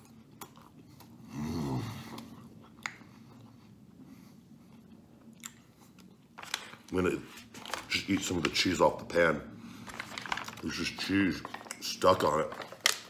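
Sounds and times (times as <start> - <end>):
man chewing with mouth closed: 0.0 - 6.4.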